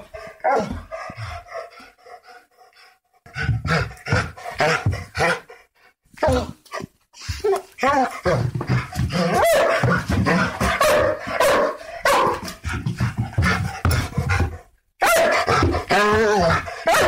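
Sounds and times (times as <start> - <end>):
dog barking: 9.3 - 12.5, 15.0 - 15.8, 16.8 - 17.0.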